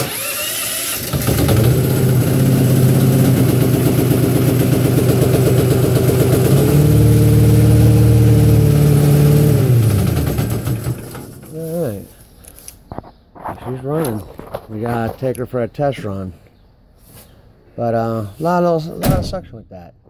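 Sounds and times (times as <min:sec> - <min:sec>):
small gasoline engine running: 0:00.0 - 0:11.4.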